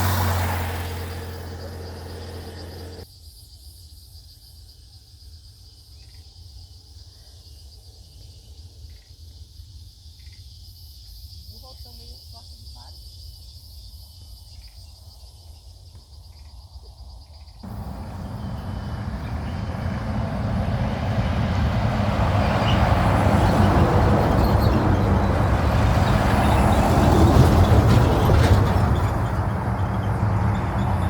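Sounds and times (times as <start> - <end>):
loud rushing rumble: 0.0 - 3.0, 17.7 - 31.0
crickets chirping: 0.0 - 4.6, 10.0 - 31.0.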